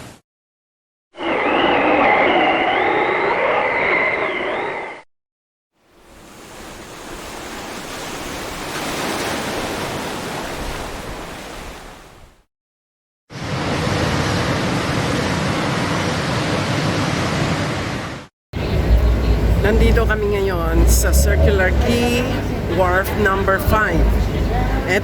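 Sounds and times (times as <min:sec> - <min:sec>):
steady outdoor rushing noise: 0:13.4 - 0:25.0.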